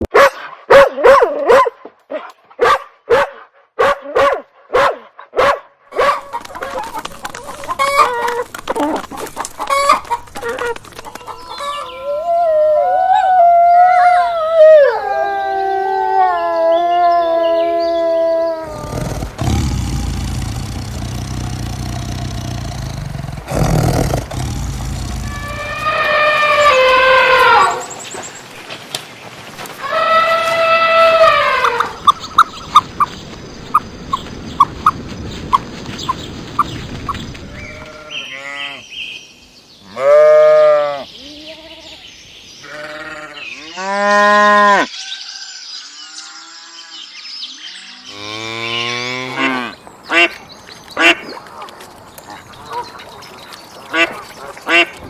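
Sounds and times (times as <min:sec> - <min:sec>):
farmyard sound: 0:05.9 - 0:12.2, 0:18.6 - 0:39.2, 0:39.8 - 0:55.0
farm animal calls: 0:06.0 - 0:12.1, 0:18.6 - 0:28.4, 0:42.6 - 0:44.9, 0:52.3 - 0:55.0.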